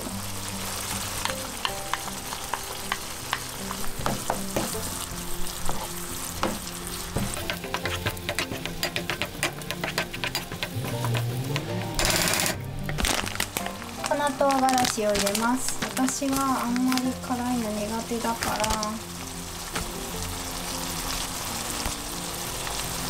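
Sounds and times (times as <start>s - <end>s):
food sizzling in a frying pan: 0.0s - 23.0s
spatula scraping a pan: 5.5s - 12.0s.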